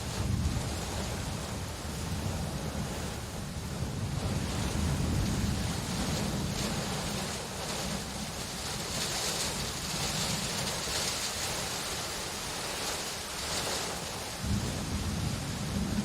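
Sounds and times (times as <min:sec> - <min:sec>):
low thunder rumble: 0:00.0 - 0:11.8, 0:14.4 - 0:16.0
heavy rain: 0:00.0 - 0:16.0.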